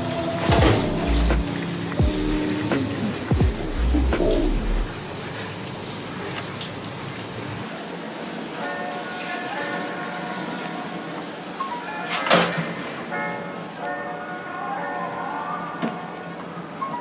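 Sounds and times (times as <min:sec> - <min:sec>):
faint background music: 0:00.0 - 0:05.1, 0:08.0 - 0:17.0
running water hissing: 0:00.0 - 0:12.1.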